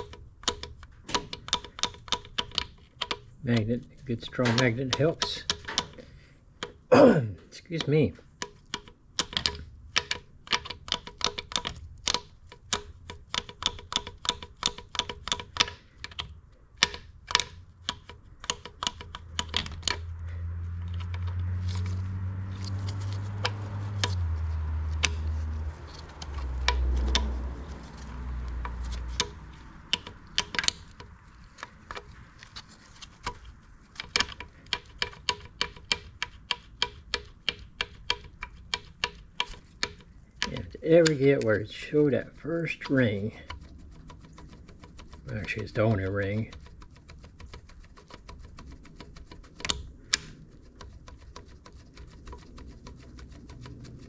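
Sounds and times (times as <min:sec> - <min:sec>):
metallic clicking and tapping: 0:00.0 - 0:06.9, 0:07.7 - 0:21.8, 0:22.5 - 0:54.0
low hum dropping in pitch: 0:20.0 - 0:29.8.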